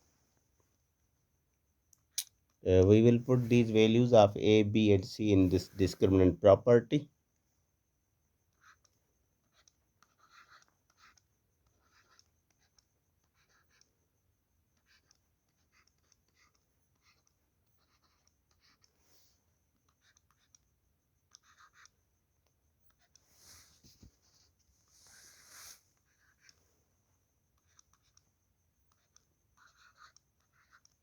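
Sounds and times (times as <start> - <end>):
pen scratching handwriting: 9.5 - 13.8, 14.8 - 19.0, 21.3 - 22.0, 25.0 - 26.5, 28.9 - 31.0.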